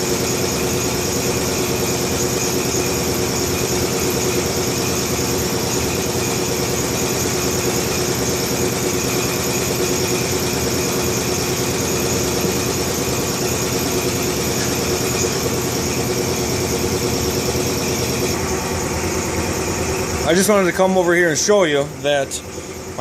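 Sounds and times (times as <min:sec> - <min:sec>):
motor running steadily: 0:00.0 - 0:23.0.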